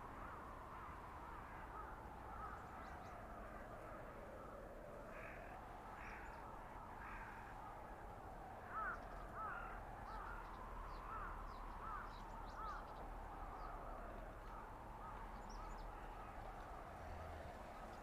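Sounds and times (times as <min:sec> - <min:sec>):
blizzard wind: 0:00.0 - 0:18.0
crow cawing: 0:00.3 - 0:02.8, 0:05.1 - 0:07.8, 0:08.6 - 0:12.8, 0:14.4 - 0:16.4.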